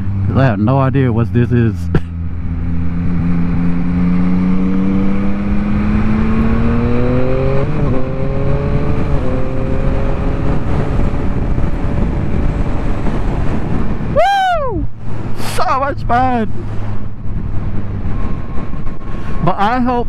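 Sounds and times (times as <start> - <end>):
motorcycle engine accelerating: 0.0 - 15.4
wind noise: 0.0 - 20.0.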